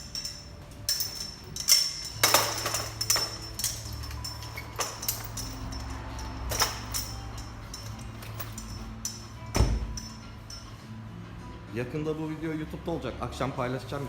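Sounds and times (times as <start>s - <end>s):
tools tapping and clicking: 0.0s - 10.8s.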